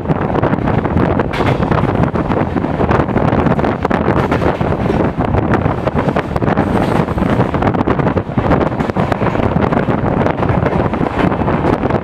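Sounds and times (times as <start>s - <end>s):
train rumbling: 0.0s - 12.0s
wind buffeting microphone: 0.0s - 12.0s.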